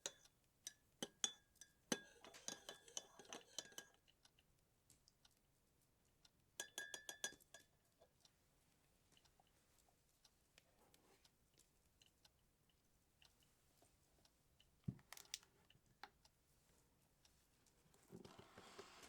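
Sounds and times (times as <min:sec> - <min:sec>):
cutlery and dishes clinking: 0:00.0 - 0:04.0.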